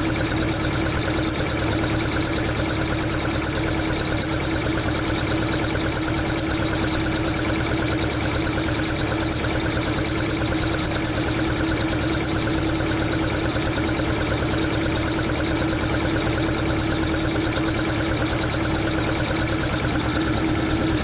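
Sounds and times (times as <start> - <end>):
car engine idling: 16.0 - 21.0.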